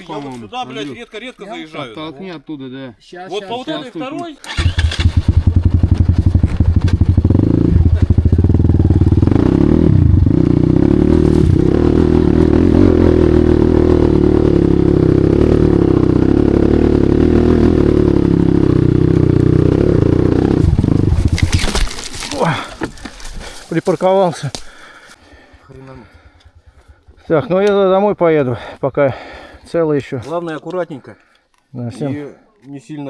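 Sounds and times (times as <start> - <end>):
motorcycle engine revving: 4.5 - 23.8, 24.8 - 29.8.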